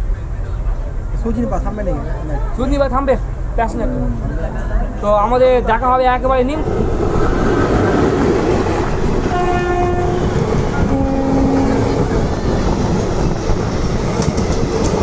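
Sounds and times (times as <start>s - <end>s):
train rumble and clatter: 0.0s - 15.0s
train horn: 9.3s - 12.0s.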